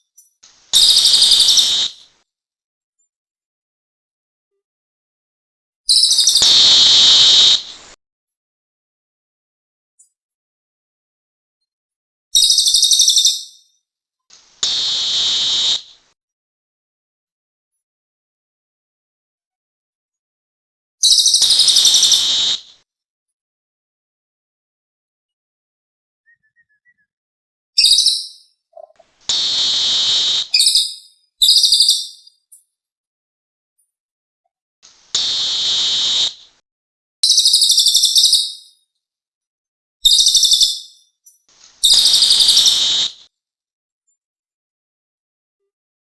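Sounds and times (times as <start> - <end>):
rapid high bird trill: 0.7 - 2.0, 5.9 - 8.0, 12.4 - 13.4, 14.5 - 16.0, 21.0 - 22.7, 27.8 - 32.2, 34.9 - 36.5, 40.0 - 40.9, 41.7 - 43.3
harsh steady buzz: 6.4 - 8.0.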